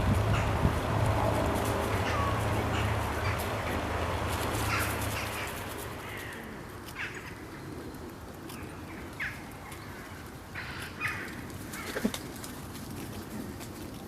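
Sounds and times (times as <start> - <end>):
bird calling: 1.9 - 3.8, 4.6 - 7.9.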